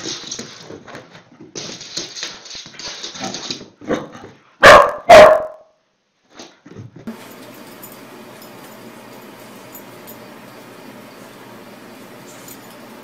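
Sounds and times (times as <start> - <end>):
dog barking: 4.6 - 5.7.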